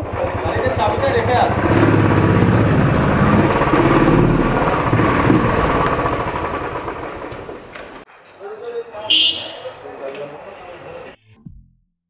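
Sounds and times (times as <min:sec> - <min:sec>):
motorcycle engine at low revs: 0:00.0 - 0:08.0.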